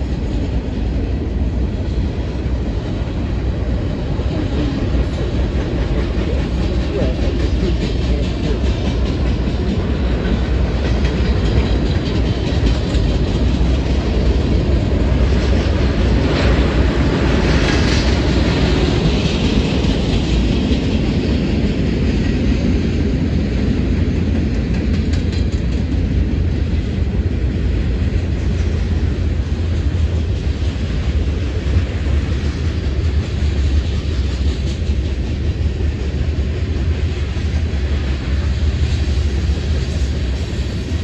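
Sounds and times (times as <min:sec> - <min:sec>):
clickety-clack over rail joints: 0:00.0 - 0:41.0
freight train wheels rumbling: 0:00.0 - 0:41.0
clatter and hiss: 0:28.2 - 0:41.0.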